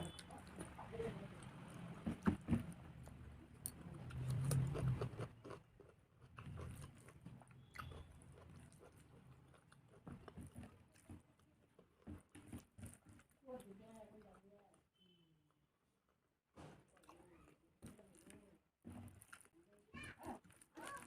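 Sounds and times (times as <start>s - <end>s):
person chewing with wet smacks: 0.0s - 14.4s
soft food crunch: 0.0s - 21.0s.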